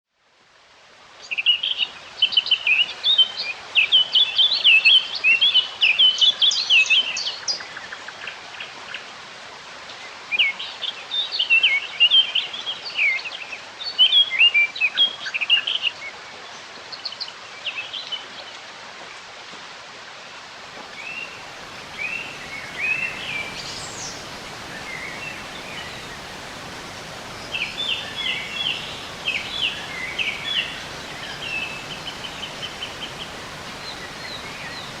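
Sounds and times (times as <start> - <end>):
steady background hiss: 0.2 - 35.0
songbirds twittering: 20.8 - 35.0.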